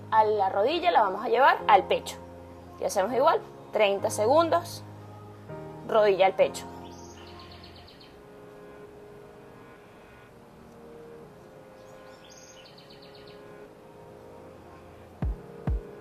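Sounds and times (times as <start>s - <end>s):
small bird chirping trill: 6.7s - 8.2s, 11.8s - 13.5s.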